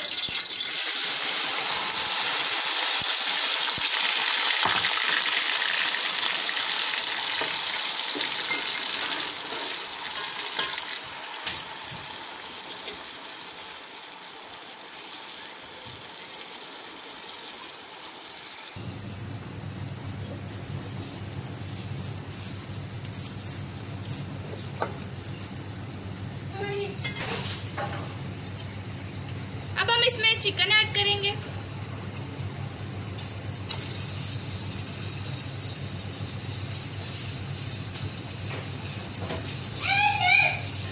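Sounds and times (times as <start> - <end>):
onion paste sizzling in oil: 0.0 - 40.9.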